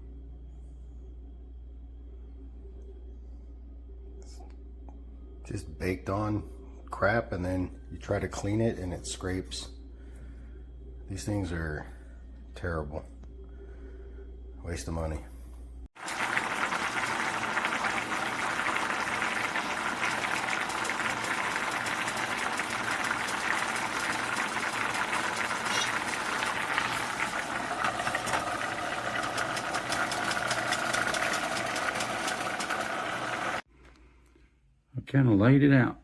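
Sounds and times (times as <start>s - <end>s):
scrubbing and scraping a pan: 24.2s - 27.2s.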